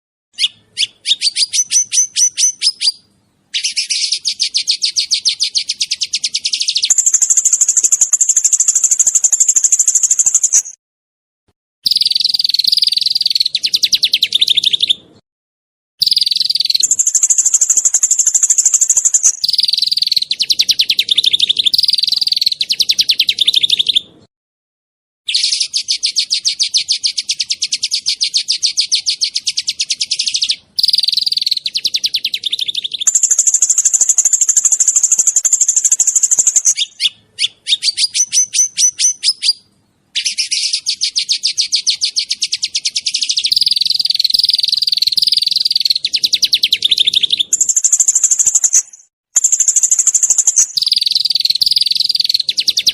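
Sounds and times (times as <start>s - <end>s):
songbirds singing rapid trills: 0.4s - 10.8s, 11.8s - 15.1s, 16.0s - 24.2s, 25.3s - 52.9s.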